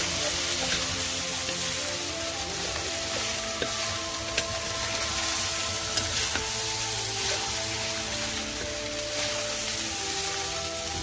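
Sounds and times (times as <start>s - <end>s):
background music with held notes: 0.0s - 11.0s
rice sizzling in a wok: 0.0s - 11.0s.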